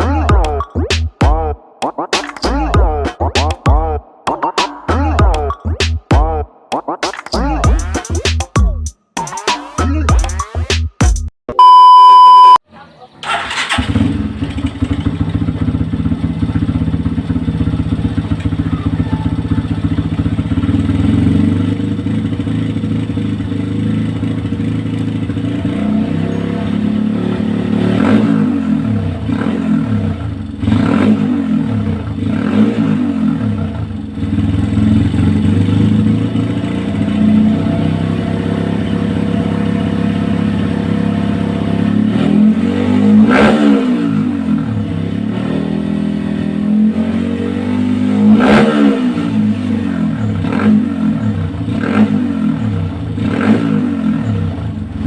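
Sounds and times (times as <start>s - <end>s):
motorcycle idling and revving: 12.8s - 55.0s.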